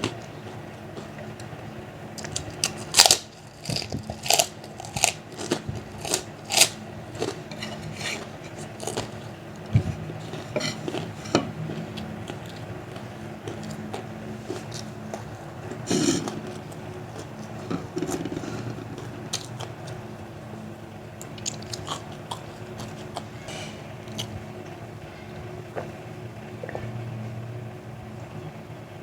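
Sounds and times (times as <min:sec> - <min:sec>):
crunching of crackers being chewed: 0:02.2 - 0:20.0, 0:21.2 - 0:24.4.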